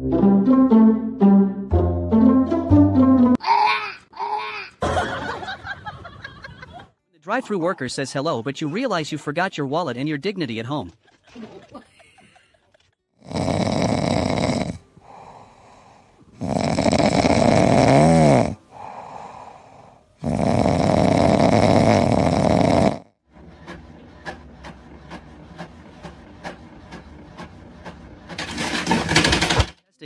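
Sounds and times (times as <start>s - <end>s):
loud snoring: 13.2s - 23.2s.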